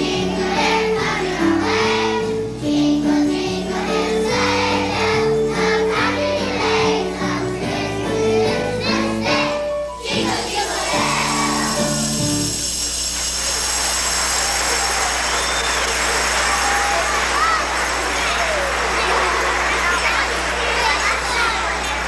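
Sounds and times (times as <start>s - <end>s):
children's choir singing: 0.0s - 12.8s, 15.7s - 22.0s
instrumental accompaniment: 0.0s - 20.8s
hissing noise: 10.1s - 19.5s.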